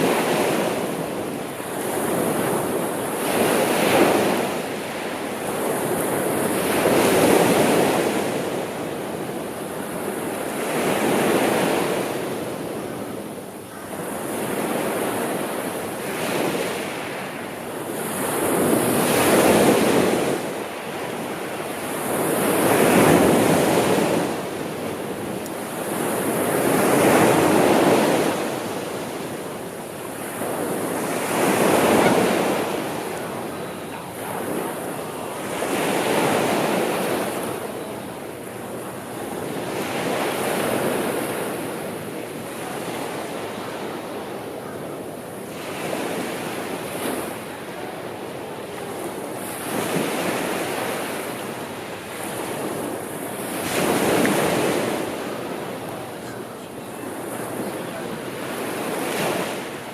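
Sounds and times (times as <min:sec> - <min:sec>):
sea waves washing: 0:13.9 - 0:59.9.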